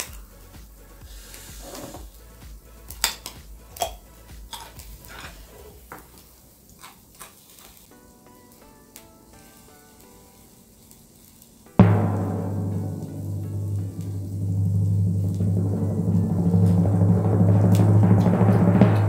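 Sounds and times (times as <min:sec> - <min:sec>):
soft background music: 0:00.0 - 0:19.0
meat sizzling on a grill: 0:05.3 - 0:11.8
loud low drum hit: 0:11.8 - 0:19.0.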